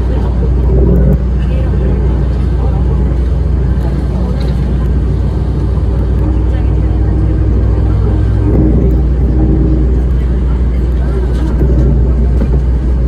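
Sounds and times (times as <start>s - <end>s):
bus engine drone: 0.0s - 13.0s
faint voices: 0.0s - 13.0s.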